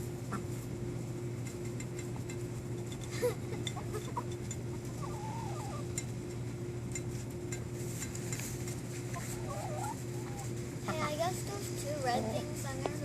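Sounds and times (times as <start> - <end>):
low hum: 0.0 - 13.0
beaks pecking at egg: 0.1 - 11.9
hens calling softly: 3.7 - 6.0, 9.1 - 11.2.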